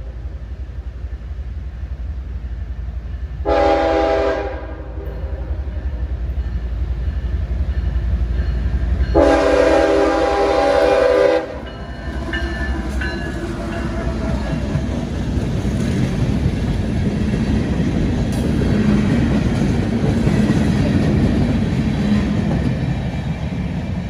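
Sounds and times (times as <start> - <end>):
locomotive horn blasts: 3.4 - 5.6, 9.2 - 11.8.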